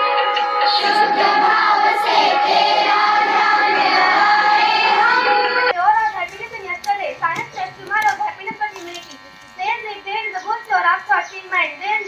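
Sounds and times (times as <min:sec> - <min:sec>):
children singing together: 0:00.6 - 0:05.7.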